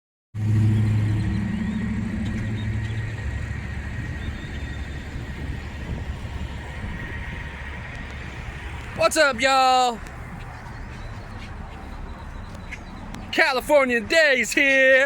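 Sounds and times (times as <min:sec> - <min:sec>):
low traffic rumble: 0:00.4 - 0:15.0
vehicle engine humming: 0:00.4 - 0:15.0.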